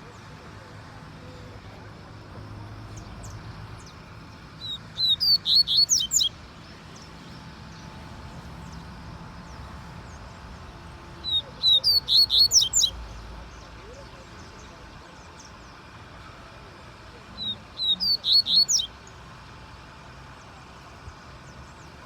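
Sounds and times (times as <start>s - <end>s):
bird chirping high notes: 4.6s - 6.3s, 11.3s - 13.0s, 17.8s - 18.9s.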